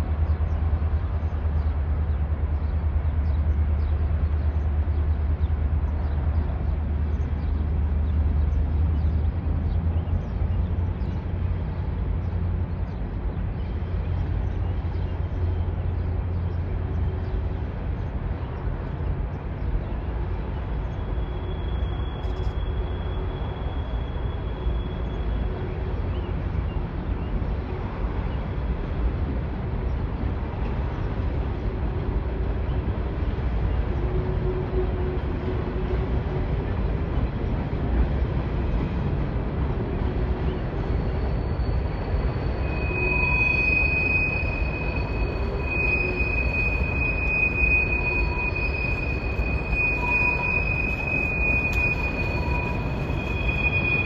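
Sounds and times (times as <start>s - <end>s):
freight cars rumbling past: 0.0s - 54.0s
high-pitched wheel squeal: 40.9s - 54.0s.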